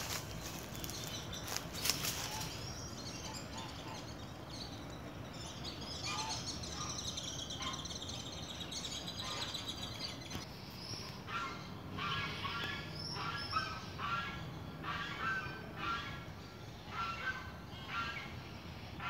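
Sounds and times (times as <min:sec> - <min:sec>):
dry leaves crackling underfoot: 0:00.0 - 0:02.9
small birds chirping: 0:00.0 - 0:19.0.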